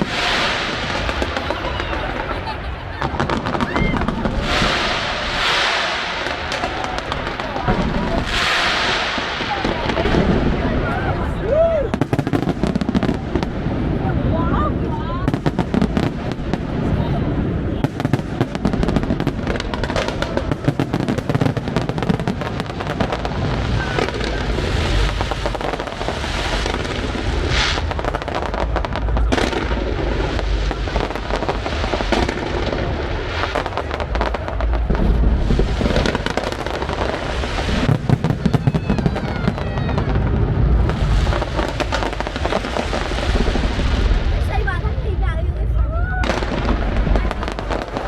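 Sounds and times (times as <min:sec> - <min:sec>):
whistling fireworks: 0:00.0 - 0:44.7, 0:45.9 - 0:48.0
fireworks crackling: 0:00.0 - 0:48.0.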